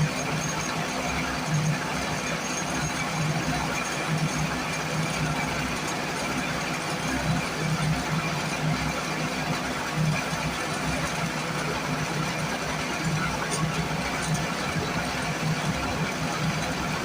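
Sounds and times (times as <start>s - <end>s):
portable generator engine running: 0.0s - 17.0s.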